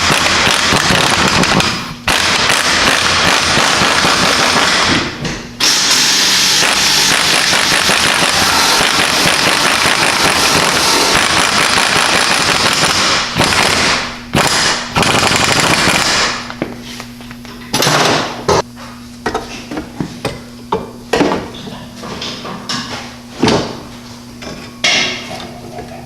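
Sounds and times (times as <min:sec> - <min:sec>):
impact wrench rattling: 0:00.0 - 0:16.4.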